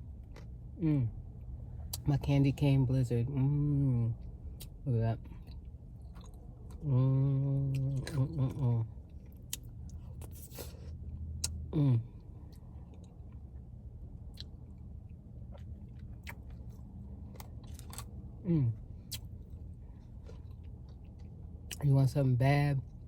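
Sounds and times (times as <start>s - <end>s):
person chewing crunchy candy: 5.4s - 6.9s, 7.6s - 11.7s, 14.2s - 14.8s, 15.4s - 21.8s.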